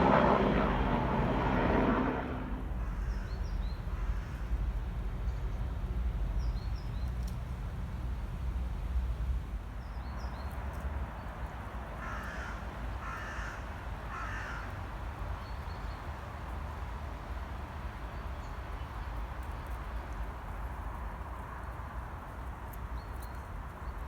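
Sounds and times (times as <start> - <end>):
crow cawing: 12.0 - 14.7.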